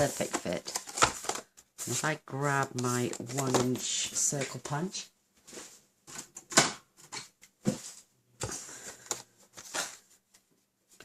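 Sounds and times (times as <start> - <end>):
cardstock rustling: 0.0 - 4.7, 7.1 - 10.2.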